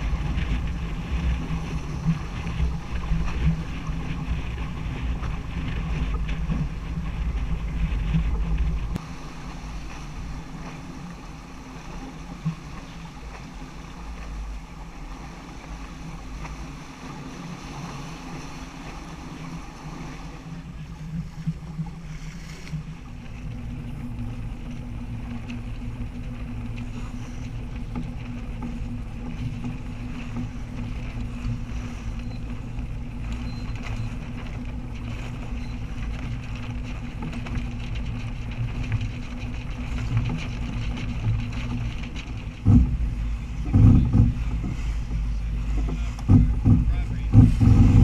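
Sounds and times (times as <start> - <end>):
wind noise on microphone: 0.0 - 10.7, 23.6 - 48.0
boat engine running: 0.0 - 48.0
loud knocks: 42.6 - 44.8, 45.8 - 48.0.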